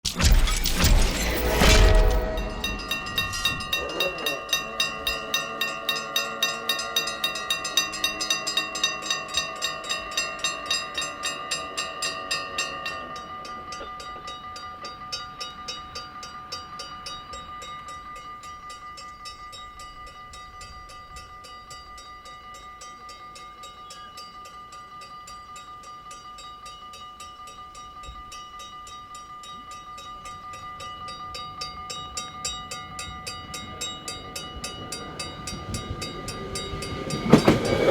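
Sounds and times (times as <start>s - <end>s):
train passing: 0.2s - 13.8s, 32.4s - 37.9s
level-crossing bell ringing: 2.1s - 37.9s.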